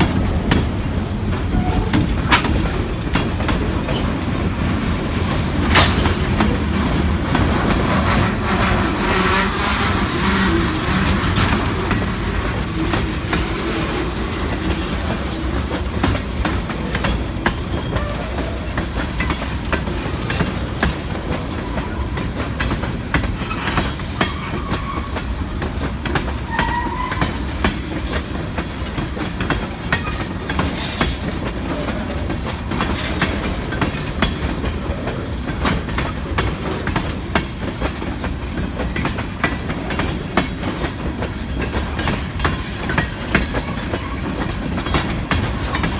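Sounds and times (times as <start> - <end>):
low train rumble: 0.0 - 45.9
train wheels clicking over rail joints: 0.0 - 45.9
faint wheel squeal: 23.4 - 25.2, 26.5 - 27.5.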